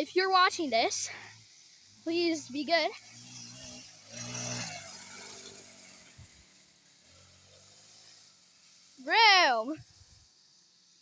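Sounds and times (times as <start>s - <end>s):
dirt bike engine passing: 0.0s - 11.0s.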